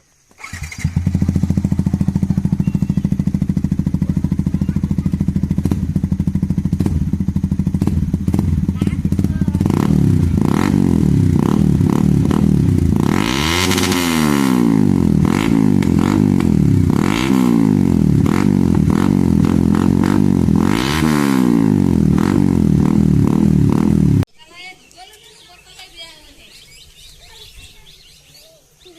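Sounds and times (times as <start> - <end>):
exhaust pops and crackles: 0.2 - 13.0, 15.3 - 17.2
motorcycle engine revving: 0.3 - 24.3.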